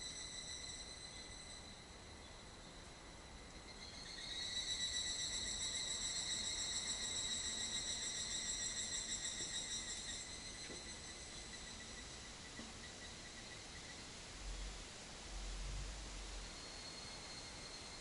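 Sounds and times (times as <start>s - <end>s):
insect trilling: 3.8s - 12.0s.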